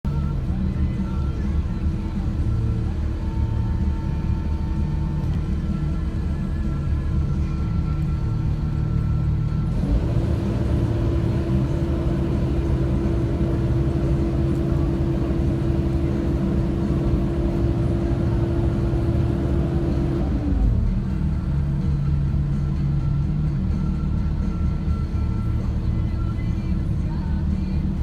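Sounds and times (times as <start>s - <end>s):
loader engine running: 0.0s - 28.0s
steady high whine: 0.1s - 20.5s.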